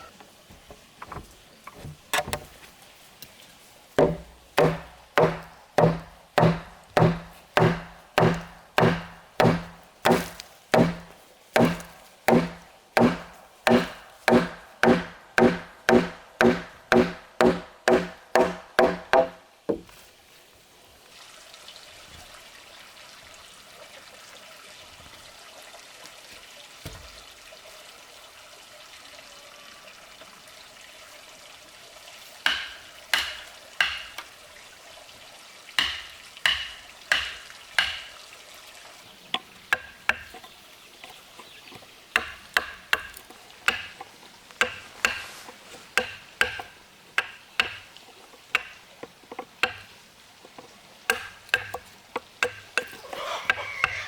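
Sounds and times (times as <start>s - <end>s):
hand tool striking with ringing blows: 4.0s - 19.0s.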